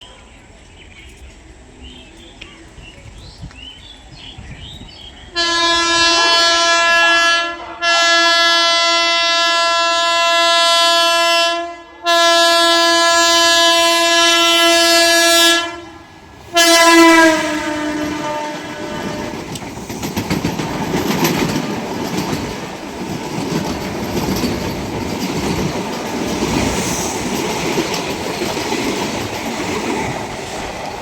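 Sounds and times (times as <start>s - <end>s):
train rumble and rail clatter: 0.0s - 31.0s
train horn blasts: 5.3s - 19.6s.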